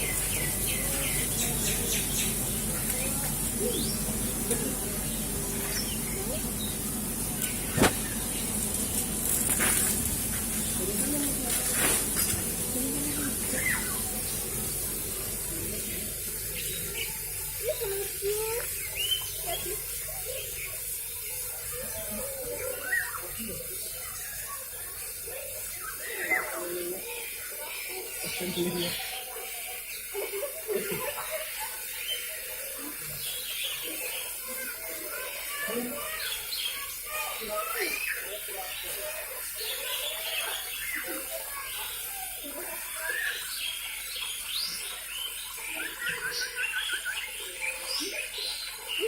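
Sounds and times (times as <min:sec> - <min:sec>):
water spraying and splashing: 0:00.0 - 0:49.0
bird chirp: 0:16.5 - 0:24.6, 0:35.7 - 0:49.0
bird chirps: 0:39.7 - 0:49.0.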